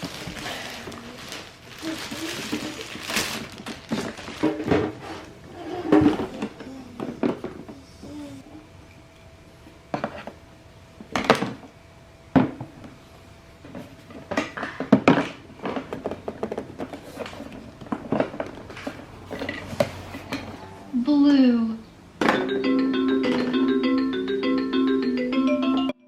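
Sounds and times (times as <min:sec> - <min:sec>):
toys knocking and clattering: 0:05.9 - 0:07.8, 0:14.1 - 0:20.5, 0:22.2 - 0:23.8.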